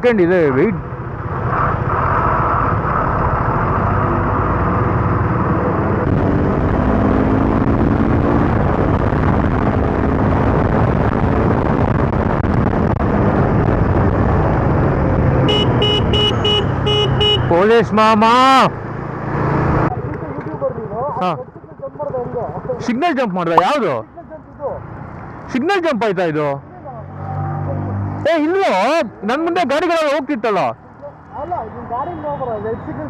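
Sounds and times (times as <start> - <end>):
road traffic: 0.0 - 33.0
vehicle horn tooting: 15.5 - 17.5.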